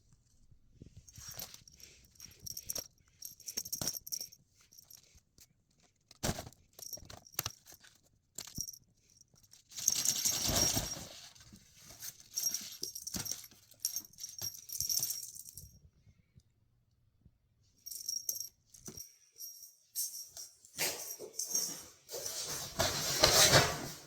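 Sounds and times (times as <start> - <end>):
small metal bells jingling: 9.7 - 11.3, 12.0 - 15.8, 17.8 - 22.8.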